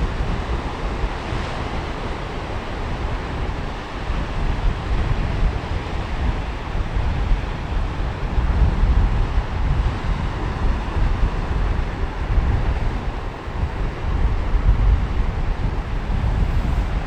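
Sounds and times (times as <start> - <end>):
sea waves washing onto beach: 0.0 - 17.0
wind buffeting microphone: 0.0 - 17.0.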